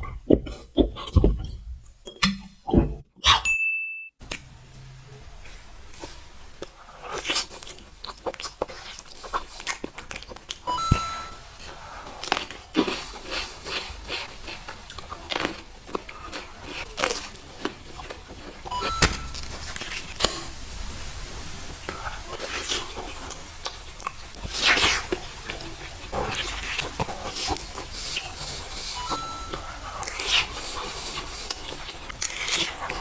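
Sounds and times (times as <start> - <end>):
crunching and chewing: 5.9 - 10.7, 11.6 - 20.4, 21.9 - 33.0.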